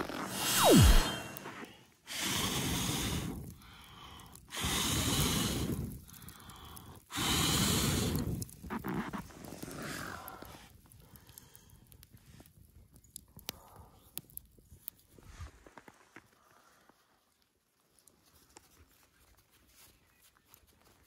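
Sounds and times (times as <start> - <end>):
hard blows of breath: 0.0 - 8.4
quick falling tone: 0.2 - 1.5.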